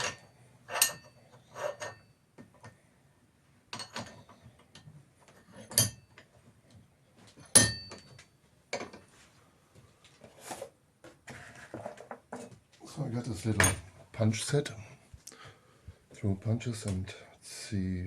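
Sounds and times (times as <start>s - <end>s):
metal tools clinking on workbench: 0.0s - 2.1s, 5.4s - 6.3s, 7.4s - 8.2s.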